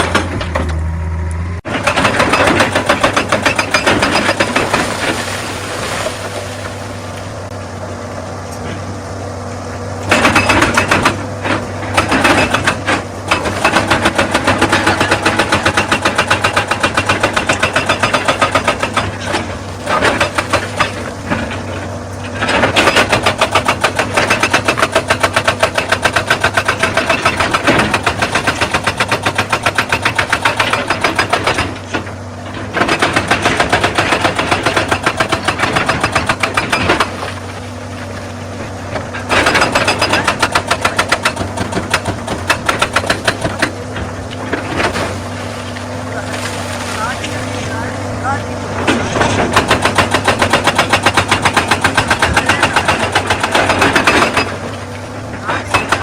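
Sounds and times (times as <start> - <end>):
diesel engine running: 0.0 - 56.0
rock breaker hammering on stone: 12.0 - 19.1, 39.3 - 43.8, 49.5 - 54.5, 55.6 - 56.0.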